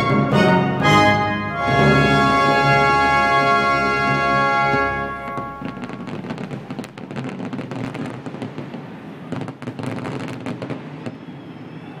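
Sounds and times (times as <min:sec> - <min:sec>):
fireworks crackling: 0:01.6 - 0:12.0.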